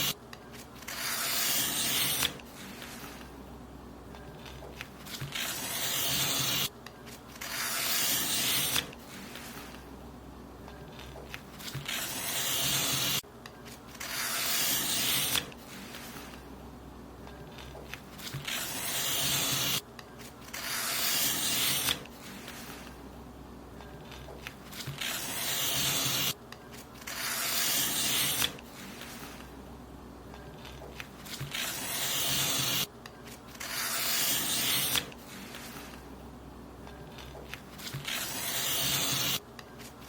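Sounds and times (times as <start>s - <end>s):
paper being cut: 0.0s - 3.2s, 4.4s - 9.8s, 11.0s - 13.2s, 13.9s - 16.4s, 17.6s - 19.8s, 20.4s - 22.9s, 24.1s - 29.4s, 30.6s - 36.0s, 37.1s - 39.9s.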